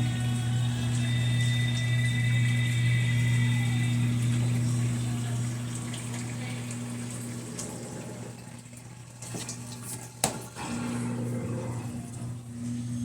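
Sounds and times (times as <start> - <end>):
electric hum: 0.0 - 8.7
washing machine running: 0.0 - 13.0
water flowing: 0.0 - 13.0.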